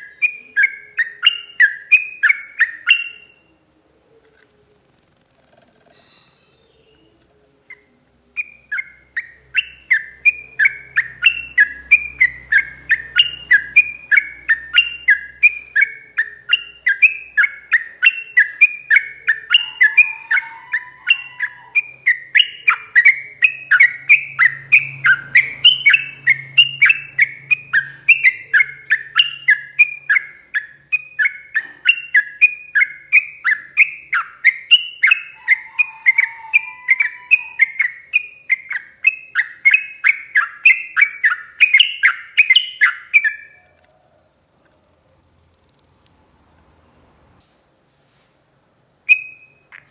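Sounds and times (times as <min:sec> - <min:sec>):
bird singing rapid notes: 0:08.4 - 0:35.6, 0:37.0 - 0:43.6.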